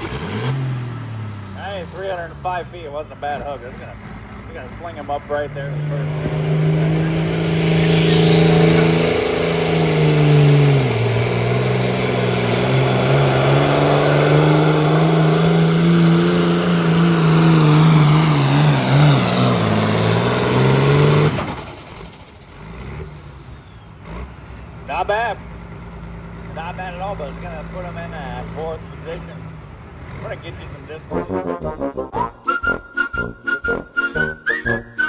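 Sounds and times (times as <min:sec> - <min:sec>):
diesel tractor engine under load: 0:00.0 - 0:35.0
high turbo whistle: 0:31.3 - 0:35.0.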